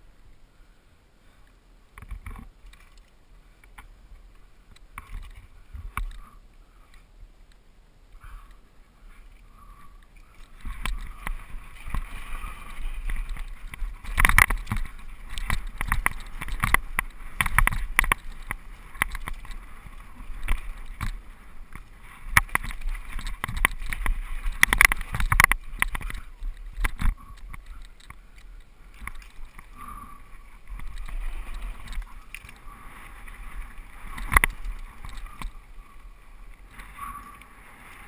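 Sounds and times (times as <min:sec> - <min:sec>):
wind rumbling on microphone: 0:08.1 - 0:38.0
bike tyres rolling over dirt: 0:09.1 - 0:38.0
bike rattles and knocks: 0:10.3 - 0:28.2, 0:34.0 - 0:35.6.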